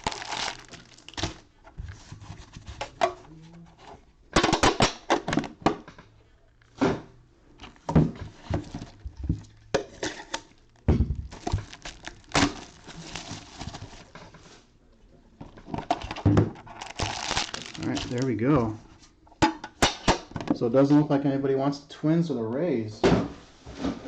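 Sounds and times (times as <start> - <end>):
wrapper rustling: 0.0 - 2.7, 8.7 - 14.2, 16.0 - 18.8.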